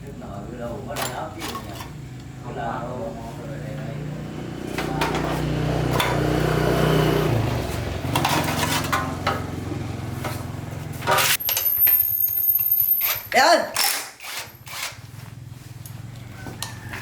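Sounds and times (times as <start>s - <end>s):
motorbike engine running: 3.5s - 11.4s, 15.0s - 17.0s.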